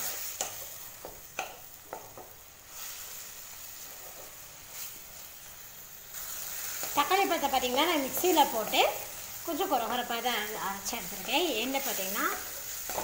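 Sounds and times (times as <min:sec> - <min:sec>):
vegetables sizzling in oil: 0:00.0 - 0:13.0
spatula scraping pan: 0:10.9 - 0:13.0.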